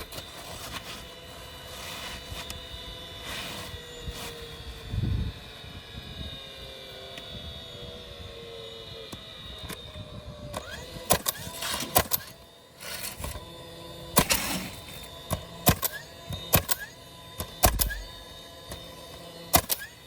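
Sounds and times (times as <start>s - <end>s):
sharp clicks and knocks: 15.3s - 18.8s, 19.5s - 19.9s.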